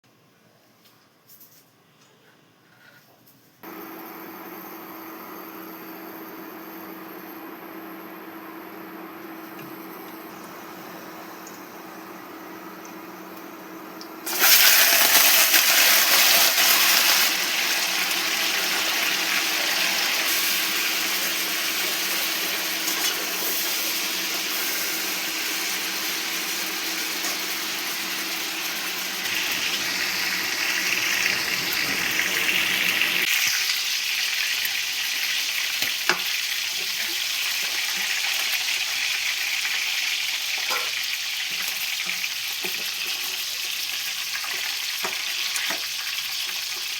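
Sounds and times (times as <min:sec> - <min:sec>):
food sizzling in hot oil: 0:13.9 - 0:46.9.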